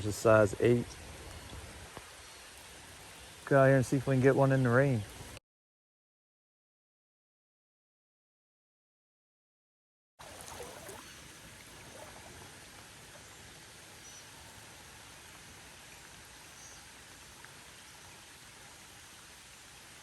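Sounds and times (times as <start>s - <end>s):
creek water flowing: 0.0s - 5.4s, 10.2s - 20.0s
rain falling on a creek: 0.0s - 5.4s, 10.2s - 20.0s.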